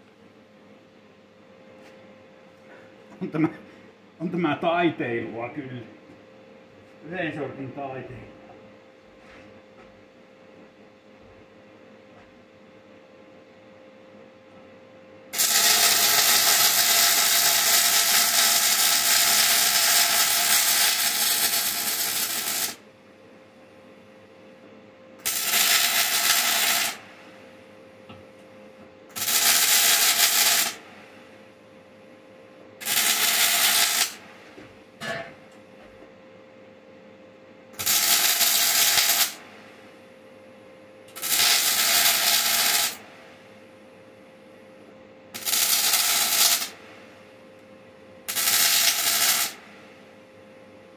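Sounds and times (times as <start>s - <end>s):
faint steady hum: 0.0s - 50.9s
welding arc crackling and hissing: 15.3s - 22.8s, 25.2s - 27.1s, 29.1s - 30.8s, 32.8s - 34.3s, 37.8s - 39.4s, 41.1s - 43.1s, 45.3s - 46.8s, 48.3s - 49.6s.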